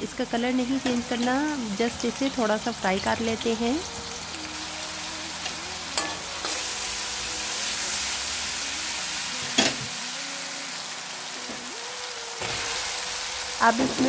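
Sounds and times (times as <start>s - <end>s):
paste sizzling in hot oil: 0.0s - 14.0s.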